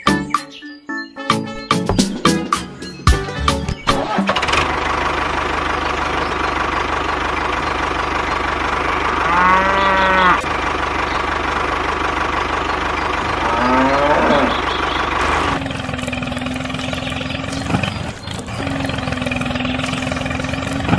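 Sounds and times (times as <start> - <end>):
cow mooing: 9.0 - 10.5, 13.2 - 14.8.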